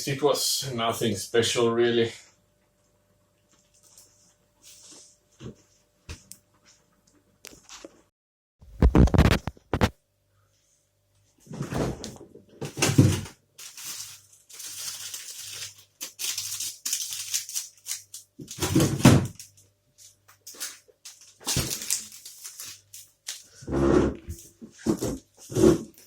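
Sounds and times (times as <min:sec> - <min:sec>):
plastic wrapper crinkling: 0:13.6 - 0:23.6.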